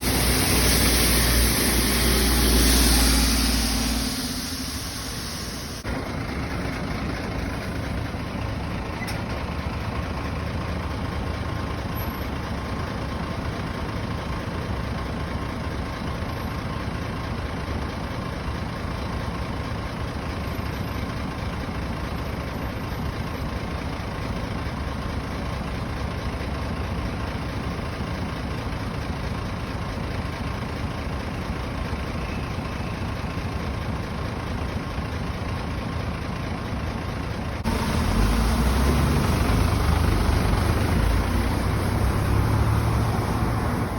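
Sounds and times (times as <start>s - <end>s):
diesel engine running: 0.0s - 43.9s.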